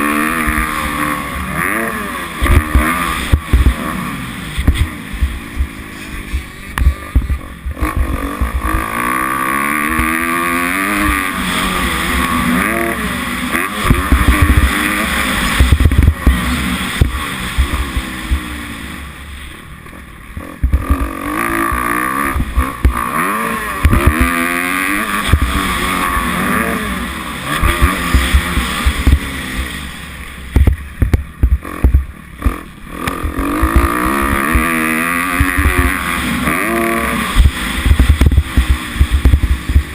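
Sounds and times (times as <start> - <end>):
motocross engine revving: 0.0 - 39.9
low thumps: 2.4 - 3.9, 4.5 - 8.9, 13.8 - 18.6, 20.4 - 23.1, 25.2 - 25.9, 27.6 - 29.4, 30.5 - 36.1, 37.3 - 39.9.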